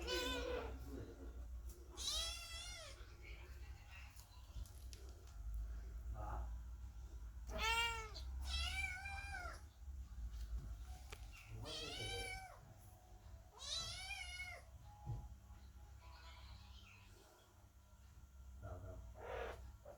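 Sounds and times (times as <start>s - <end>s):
kittens meowing: 0.0s - 0.8s, 1.9s - 3.0s, 7.5s - 9.6s, 11.6s - 12.6s, 13.5s - 14.7s.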